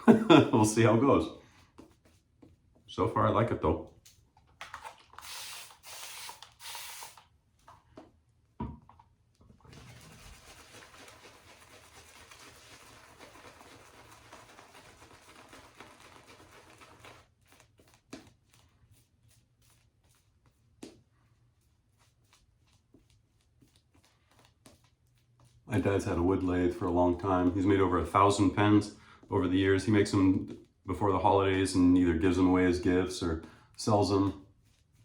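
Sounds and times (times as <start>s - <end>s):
shaving brush swishing lather: 9.7s - 27.4s.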